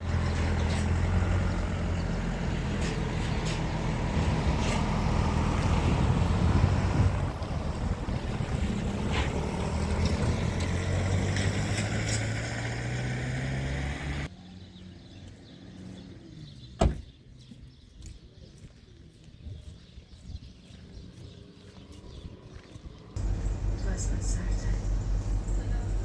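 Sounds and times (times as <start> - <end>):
vehicle engine running: 0.0 - 14.3, 23.2 - 26.0.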